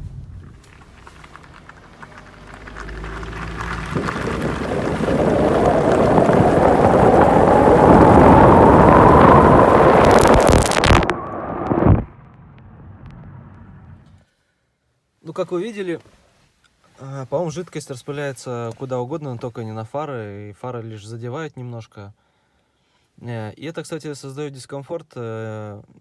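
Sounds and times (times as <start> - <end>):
faint rising whine: 0.0 - 14.2.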